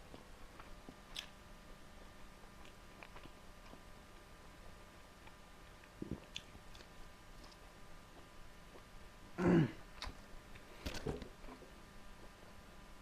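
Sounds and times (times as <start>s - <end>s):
soft chewing: 0.0s - 9.0s
throat-clearing grunt: 9.4s - 9.8s.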